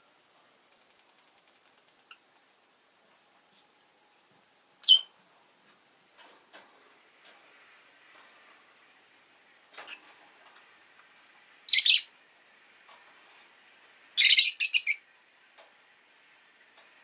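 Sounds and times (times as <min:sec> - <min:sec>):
lovebirds chirping: 0:04.8 - 0:05.2, 0:11.7 - 0:12.1, 0:14.2 - 0:15.1.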